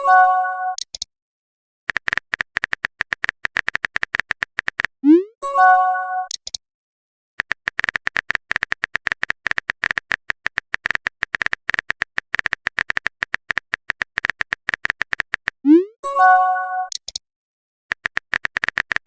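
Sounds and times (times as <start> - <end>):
rapid keystroke clicks: 1.9 - 5.0, 7.4 - 15.6, 16.9 - 17.2, 17.9 - 19.0.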